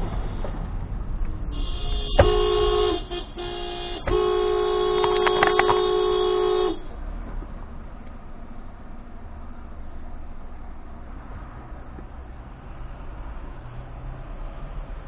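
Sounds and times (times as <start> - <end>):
car horn blasts: 1.5 - 6.9
sharp knock: 2.1 - 2.4, 5.0 - 5.9
clicks: 5.0 - 5.8.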